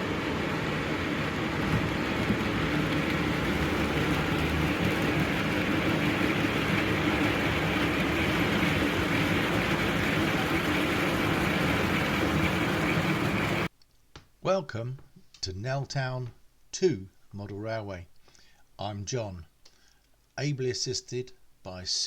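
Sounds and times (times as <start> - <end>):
train running with low hum: 0.0 - 13.7.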